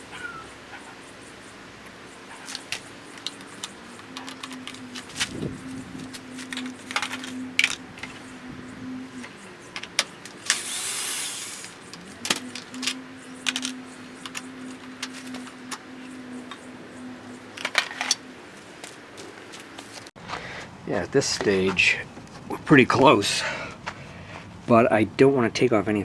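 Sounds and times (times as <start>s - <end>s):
faint steady hum: 0.0s - 20.9s
metal parts clinking: 1.8s - 8.4s, 9.2s - 16.7s, 17.3s - 18.3s.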